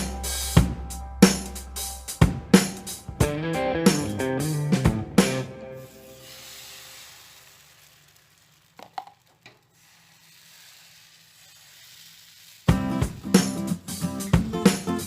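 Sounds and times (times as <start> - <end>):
music: 0.0 - 6.3, 12.7 - 15.0
faint sizzling in a pan: 5.7 - 15.0.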